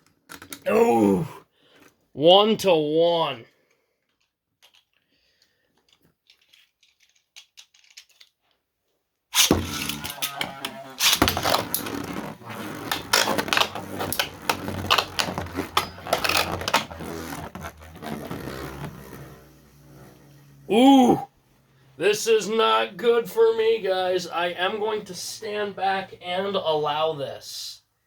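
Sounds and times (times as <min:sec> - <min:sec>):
spinning tops clashing and scraping: 0:09.4 - 0:11.8.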